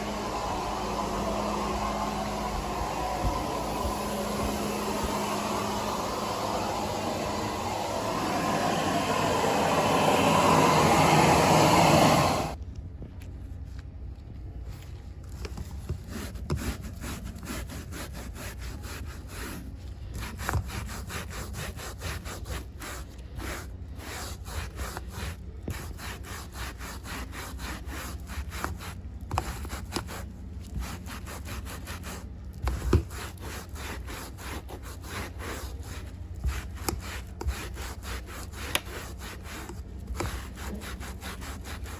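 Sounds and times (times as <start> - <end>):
loud rushing noise: 0.0 - 12.6
scratchy rubbing strokes: 16.0 - 41.9.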